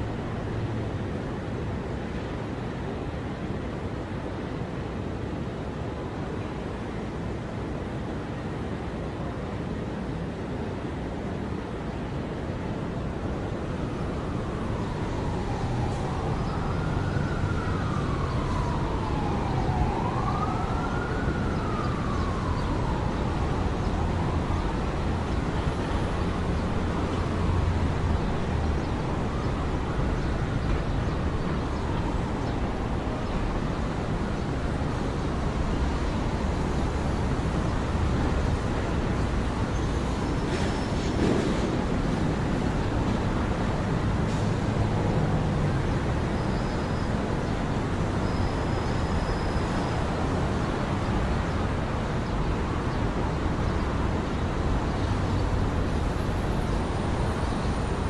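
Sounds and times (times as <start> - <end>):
low rumble of city traffic: 0.0 - 58.0
emergency vehicle siren wailing: 13.4 - 58.0.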